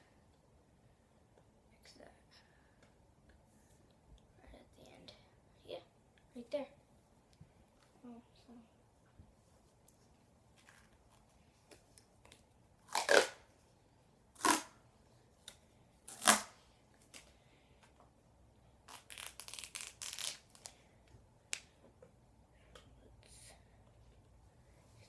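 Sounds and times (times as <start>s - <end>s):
duct tape tearing: 12.9s - 13.4s, 14.4s - 14.8s, 16.1s - 17.2s, 18.9s - 20.7s
tape unwinding crackle: 18.9s - 20.7s.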